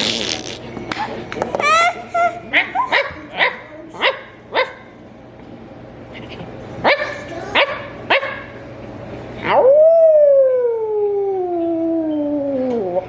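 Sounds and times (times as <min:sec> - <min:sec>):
dog barking: 0:02.6 - 0:04.9, 0:06.8 - 0:08.6
dog howling: 0:09.4 - 0:13.0.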